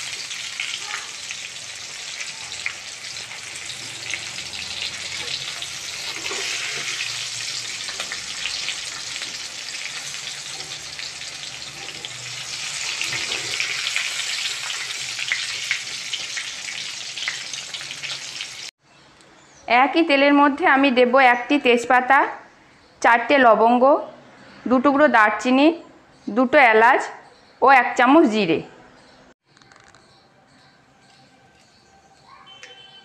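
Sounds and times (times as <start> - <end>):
vegetables sizzling in hot oil: 0.0 - 18.7
wire skimmer scraping pan: 5.2 - 7.2.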